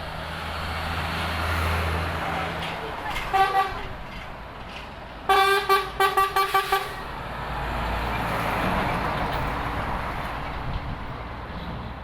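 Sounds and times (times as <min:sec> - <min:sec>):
heavy truck driving past: 0:00.0 - 0:04.1, 0:06.4 - 0:12.0
truck horn short blasts: 0:05.3 - 0:07.0.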